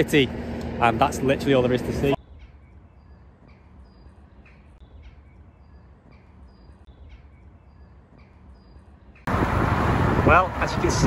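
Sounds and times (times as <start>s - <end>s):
rush of wind and road noise: 0.0s - 2.2s, 9.1s - 11.0s
small bird chirping: 2.2s - 9.3s.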